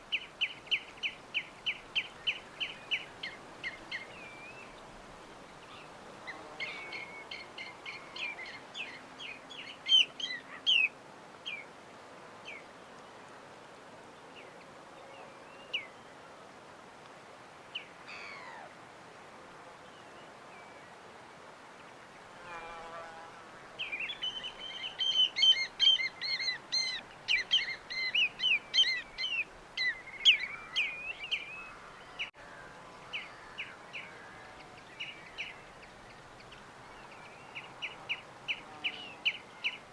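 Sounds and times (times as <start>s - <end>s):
steady background hiss: 0.0s - 39.9s
small birds chirping: 23.8s - 32.4s.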